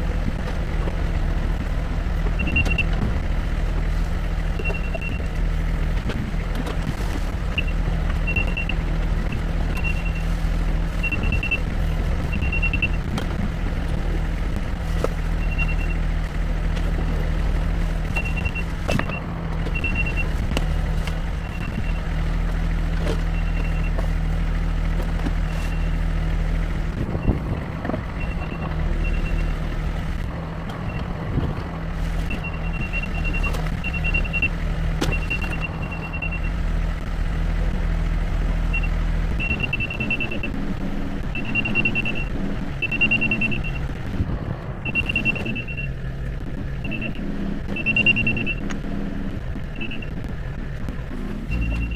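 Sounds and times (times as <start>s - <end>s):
digging machine engine running: 0.0s - 51.9s
backup alarm beeping: 2.2s - 3.3s, 4.4s - 5.7s, 7.5s - 13.1s, 15.2s - 16.4s, 17.3s - 20.8s, 21.4s - 24.2s, 27.0s - 30.2s, 32.1s - 36.9s, 38.6s - 44.0s, 44.8s - 49.0s, 49.6s - 50.3s, 51.4s - 51.9s.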